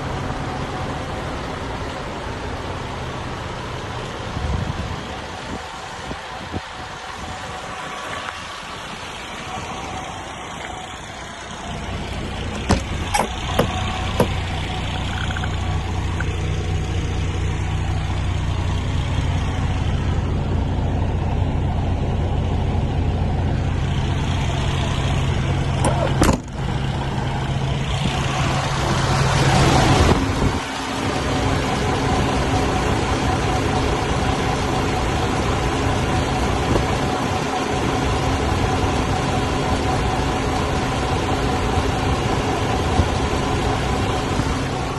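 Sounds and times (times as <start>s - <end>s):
truck diesel engine running: 0.0s - 44.9s.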